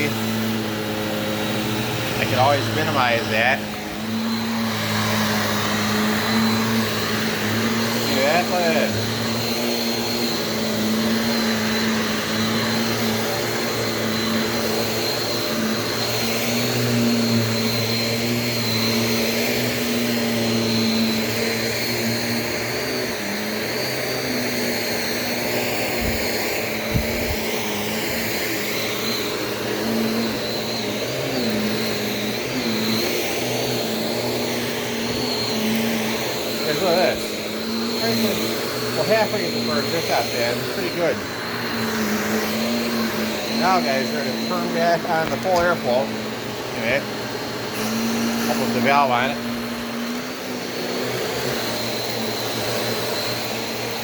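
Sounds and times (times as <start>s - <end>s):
vacuum cleaner motor hum and whine: 0.0s - 54.0s.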